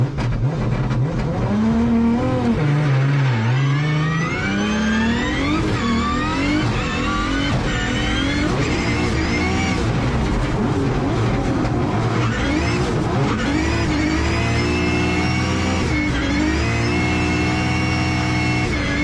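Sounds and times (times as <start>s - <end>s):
car engine revving: 0.0s - 19.0s
tyre squeal: 2.9s - 11.1s.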